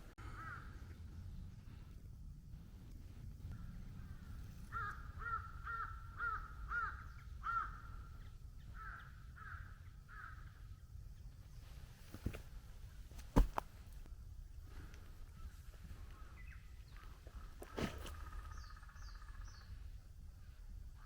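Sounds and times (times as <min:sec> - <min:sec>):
crow cawing: 0:00.2 - 0:00.7, 0:04.7 - 0:08.0, 0:08.8 - 0:10.5.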